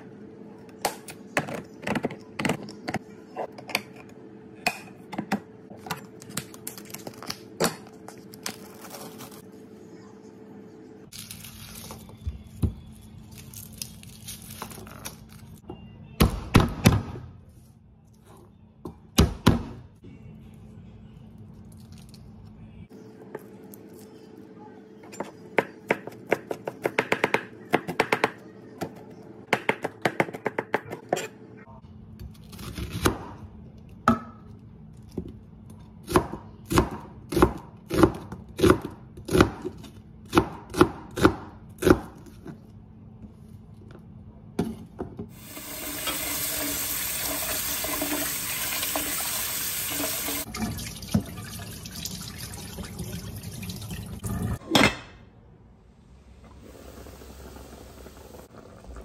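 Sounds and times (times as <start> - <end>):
water splashing into sink: 45.4 - 54.6.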